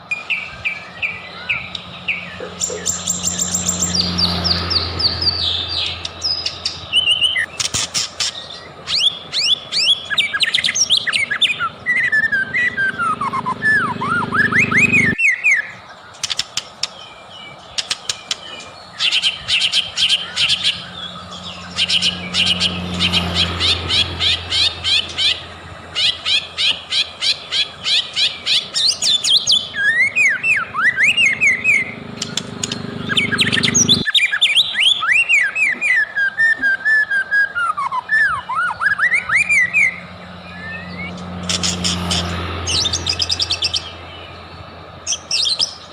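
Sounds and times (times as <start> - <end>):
songbird singing: 0.0 - 45.9.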